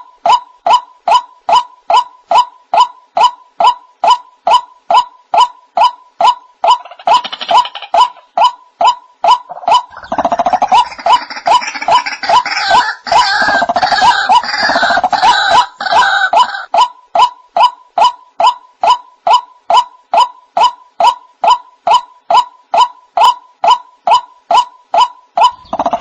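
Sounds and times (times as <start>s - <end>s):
harsh overlapping bird calls: 6.6s - 17.4s, 18.0s - 26.0s.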